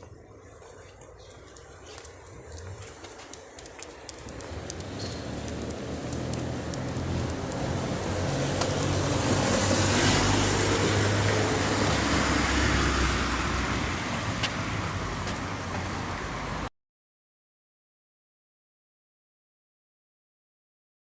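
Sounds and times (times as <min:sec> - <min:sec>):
light clicks: 0:01.0 - 0:07.8
vehicle passing by: 0:04.3 - 0:16.7.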